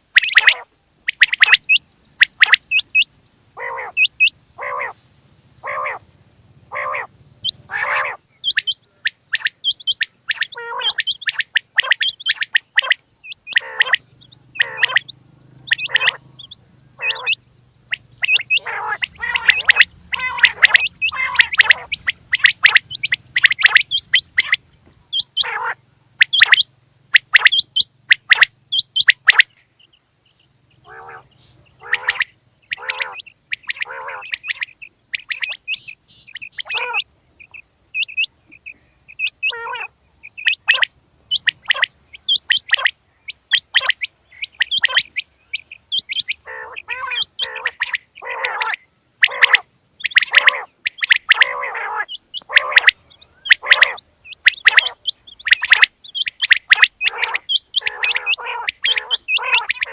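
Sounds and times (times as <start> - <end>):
quail chirping calls: 0.0 - 5.0, 5.6 - 59.9.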